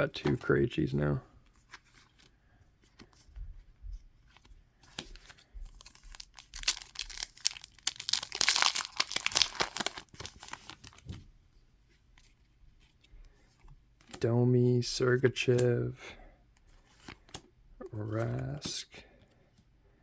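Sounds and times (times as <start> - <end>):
wrapper tearing and crackling: 5.8 - 11.0.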